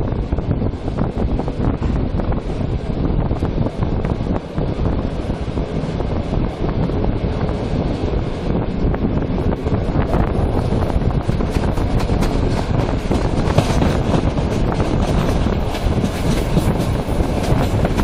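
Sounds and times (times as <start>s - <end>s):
wind buffeting microphone: 0.0s - 18.0s
train wheels clicking over rails: 3.4s - 18.0s.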